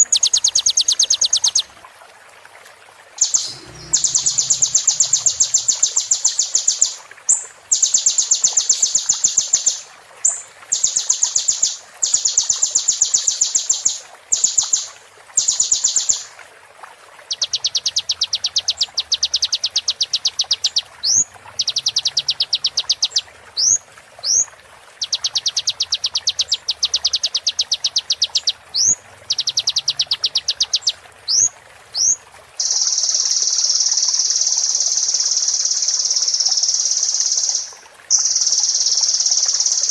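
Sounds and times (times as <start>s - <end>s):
rising whistled bird notes: 3.2s - 6.6s
bird high trills: 3.2s - 6.9s.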